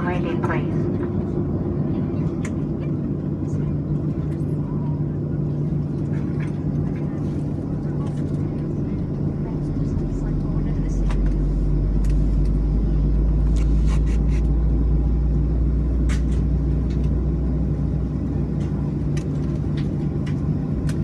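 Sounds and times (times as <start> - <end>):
jet engine cabin rumble: 0.0 - 21.0.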